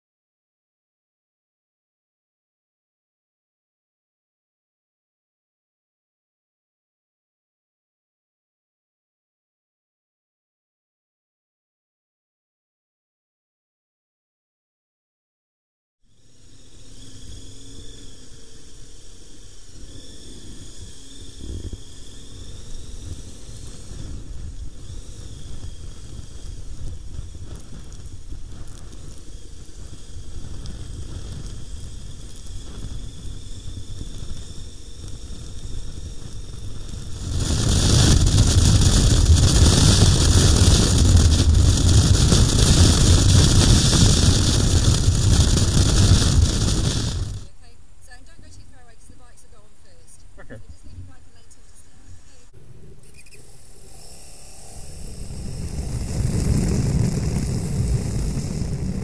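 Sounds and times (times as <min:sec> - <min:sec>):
road and wind noise: 0:16.1 - 0:48.0, 0:52.0 - 0:59.0
motorcycle engine: 0:16.7 - 0:47.5.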